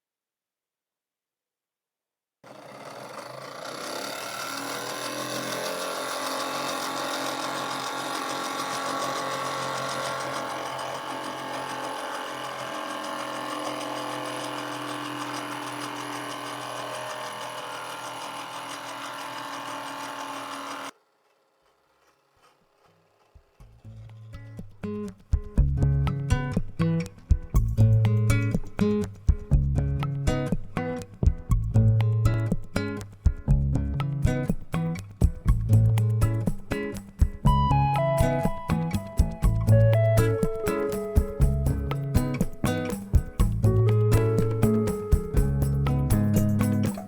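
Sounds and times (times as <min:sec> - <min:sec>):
model steam engine whirring: 0:02.5 - 0:23.6, 0:38.0 - 0:47.0.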